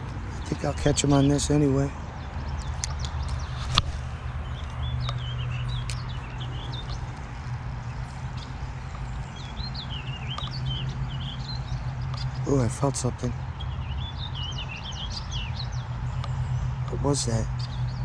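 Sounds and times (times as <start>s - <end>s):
steady low hum: 0.0s - 17.0s
small birds chirping: 0.0s - 18.0s
sharp click: 2.6s - 6.1s.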